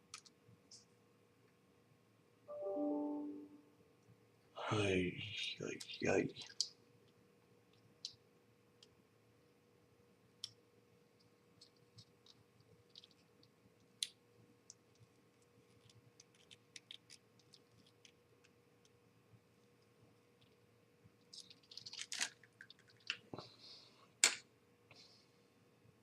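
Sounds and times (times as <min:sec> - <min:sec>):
small parts clicking and tapping: 0:00.0 - 0:00.4, 0:11.2 - 0:19.0, 0:19.6 - 0:23.4
faint steady hum: 0:00.0 - 0:26.0.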